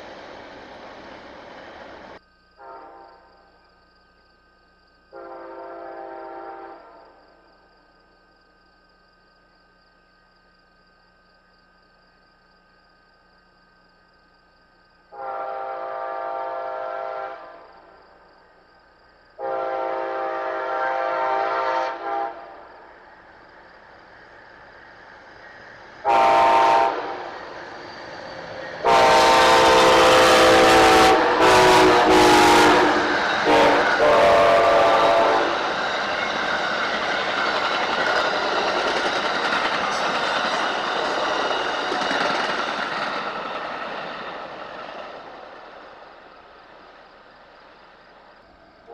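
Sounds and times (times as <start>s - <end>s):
train rumbling with wheel clatter: 0.0s - 2.2s, 19.6s - 48.5s
locomotive air horn blasts: 2.6s - 3.2s, 5.1s - 7.0s, 15.1s - 17.6s, 19.4s - 22.6s, 26.0s - 27.2s, 28.8s - 35.6s.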